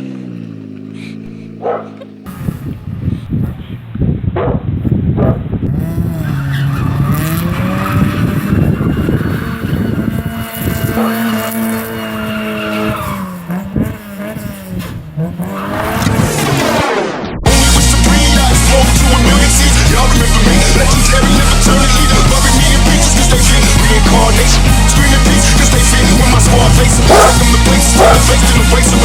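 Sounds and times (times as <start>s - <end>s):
car engine revving hard: 5.6s - 29.0s
tyres squealing: 5.8s - 16.1s, 18.0s - 29.0s.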